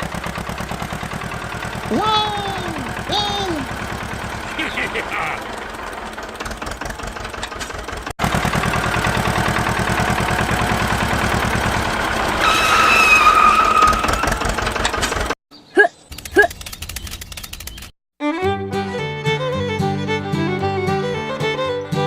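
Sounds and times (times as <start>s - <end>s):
tractor engine chugging: 0.0s - 15.4s.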